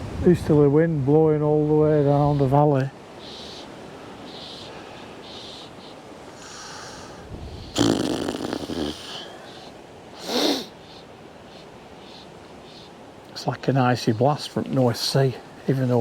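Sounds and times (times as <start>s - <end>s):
wind hiss: 0.0s - 16.0s
man snorting and sniffing: 7.7s - 9.3s, 10.2s - 10.7s.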